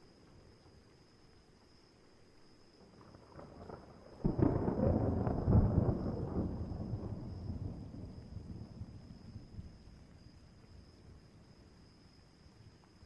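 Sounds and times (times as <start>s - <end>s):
thunder rumbling: 3.1s - 10.0s.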